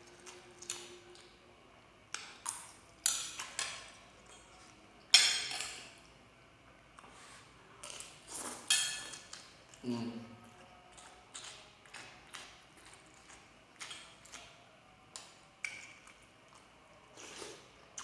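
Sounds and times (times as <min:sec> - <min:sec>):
cutlery clinking on a plate: 0:05.1 - 0:05.9, 0:08.6 - 0:09.5.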